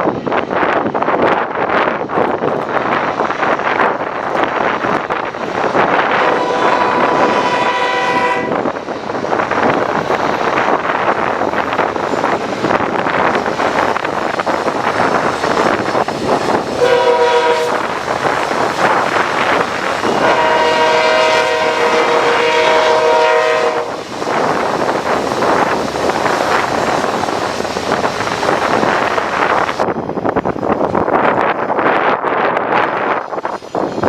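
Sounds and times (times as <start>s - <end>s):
wind buffeting microphone: 0.0s - 34.0s
locomotive air horn: 6.1s - 8.6s, 16.8s - 17.9s, 20.1s - 24.0s.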